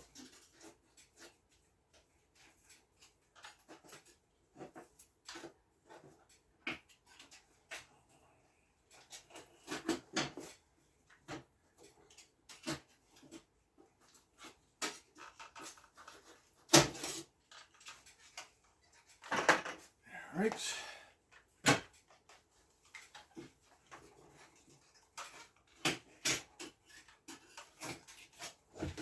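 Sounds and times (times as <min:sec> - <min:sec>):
hands and tools clicking and tapping: 0:08.8 - 0:19.9, 0:21.3 - 0:29.0.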